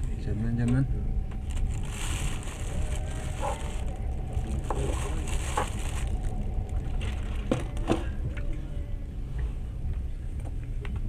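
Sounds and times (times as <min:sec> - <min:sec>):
train rumbling inside carriage: 0:00.0 - 0:11.0.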